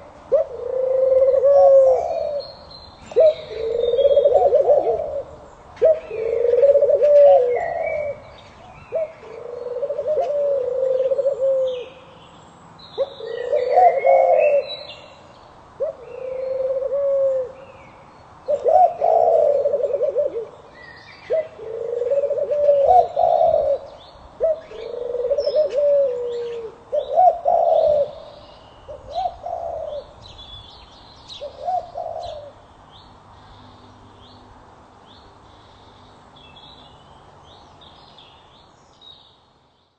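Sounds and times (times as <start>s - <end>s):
dove cooing: 0.0s - 12.1s, 13.0s - 14.9s, 15.8s - 17.6s, 18.4s - 30.2s, 31.3s - 32.6s.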